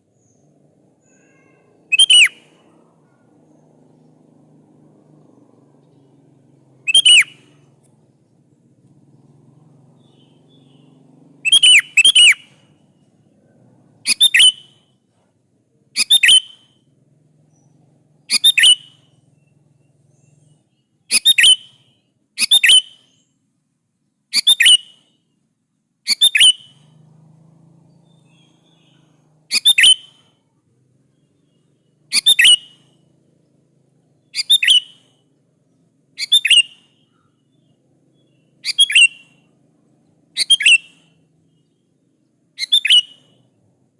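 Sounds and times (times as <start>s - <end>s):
bulbul calling: 0.2s - 4.3s, 5.3s - 8.4s, 9.1s - 13.2s, 14.0s - 14.9s, 16.0s - 16.8s, 17.5s - 23.3s, 24.3s - 25.2s, 26.1s - 27.0s, 28.0s - 30.3s, 31.2s - 33.1s, 34.1s - 35.3s, 36.1s - 41.8s, 42.5s - 43.5s.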